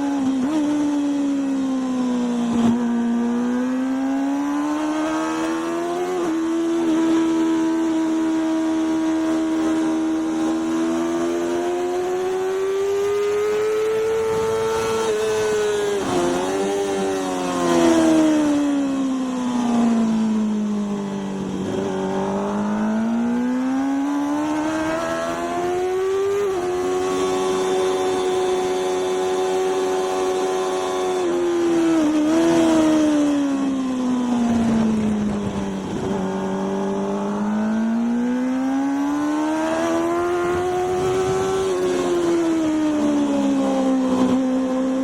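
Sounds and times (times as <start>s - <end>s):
racing motorcycle engine: 0.0s - 45.0s
wind noise: 4.0s - 45.0s.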